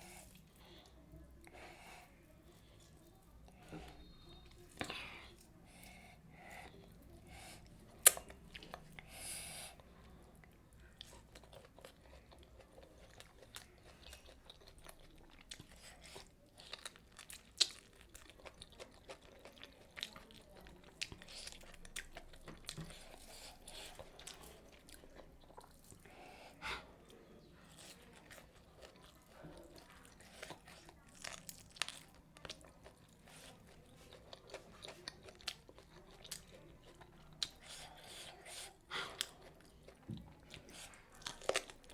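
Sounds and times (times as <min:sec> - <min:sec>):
person chewing and crunching food: 0:01.6 - 0:09.2, 0:09.8 - 0:26.5, 0:27.6 - 0:41.9
wet mouth sounds: 0:08.0 - 0:08.4.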